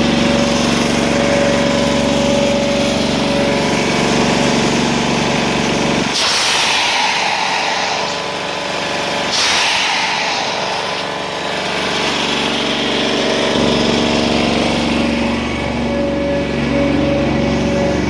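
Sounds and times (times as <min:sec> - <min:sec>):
carpet cleaner engine and vacuum drone: 0:00.0 - 0:18.0
loud hissing water suction: 0:06.1 - 0:15.0.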